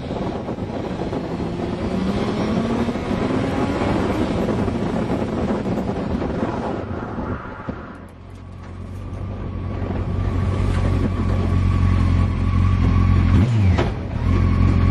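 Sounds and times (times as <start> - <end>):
wind rush: 0.0 - 11.8
sports car engine: 0.0 - 14.9.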